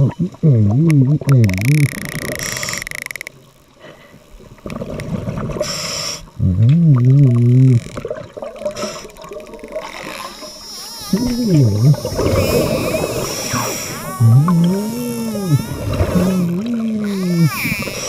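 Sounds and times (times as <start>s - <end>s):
regulator hissing inhalation: 5.6s - 6.3s, 8.7s - 9.2s, 10.2s - 18.0s
warbling underwater exhalation: 6.4s - 18.0s.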